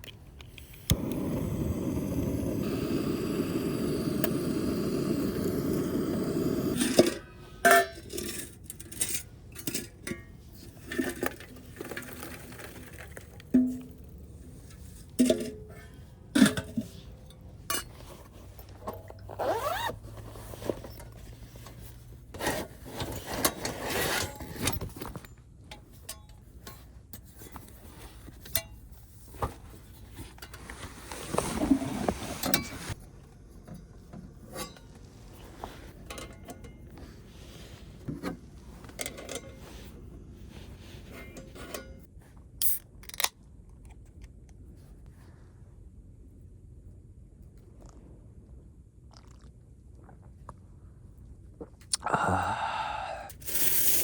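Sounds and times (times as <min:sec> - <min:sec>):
scraping and rubbing: 0:30.6 - 0:33.0.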